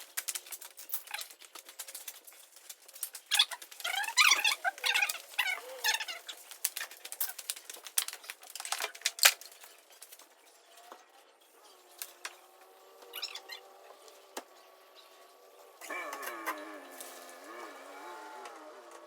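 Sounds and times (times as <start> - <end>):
chirps: 9.6 - 18.3.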